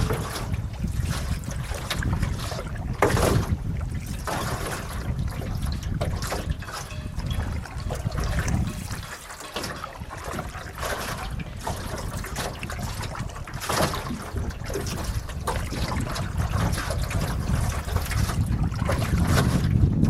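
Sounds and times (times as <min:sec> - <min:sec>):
water splashing off a paddle: 0:00.0 - 0:20.0
wind rumbling on microphone: 0:00.0 - 0:20.0.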